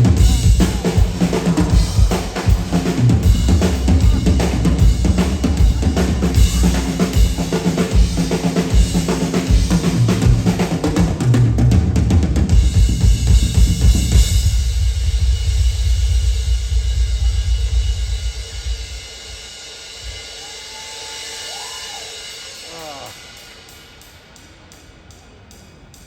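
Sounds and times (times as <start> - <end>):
heavy bass drum: 0.0 - 20.3
drums in fast rhythm: 0.0 - 26.0.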